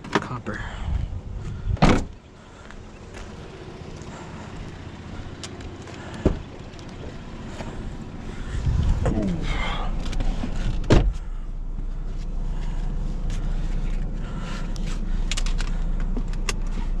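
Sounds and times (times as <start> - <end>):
car engine idling: 0.0 - 17.0
car door shutting: 1.7 - 2.2, 6.1 - 6.5, 8.7 - 11.3.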